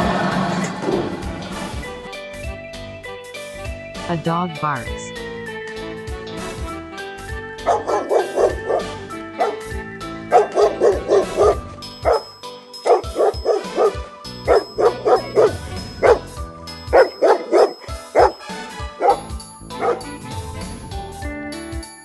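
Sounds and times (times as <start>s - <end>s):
background music: 0.0s - 22.0s
dog barking: 7.6s - 9.7s, 10.3s - 16.3s, 16.9s - 18.4s, 19.0s - 20.2s.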